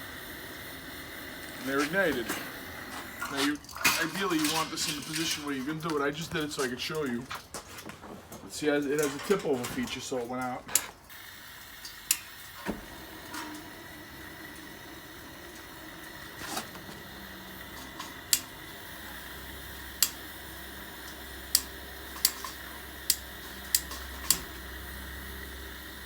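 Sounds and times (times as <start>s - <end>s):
propane gas hissing: 0.0s - 26.0s
lighter clicks: 19.9s - 25.2s.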